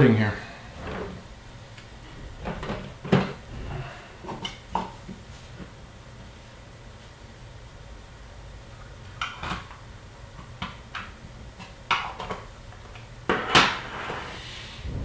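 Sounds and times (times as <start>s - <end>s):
clatter and scrape on table: 13.3s - 14.5s.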